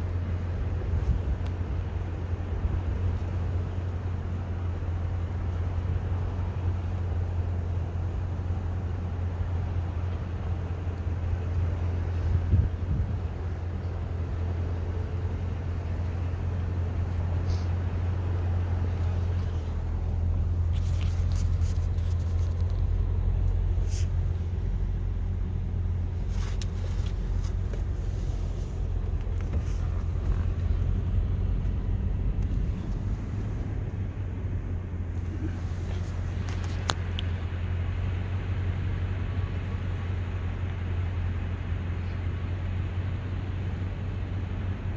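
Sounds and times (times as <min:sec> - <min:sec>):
car engine and road rumble: 0:00.0 - 0:44.9.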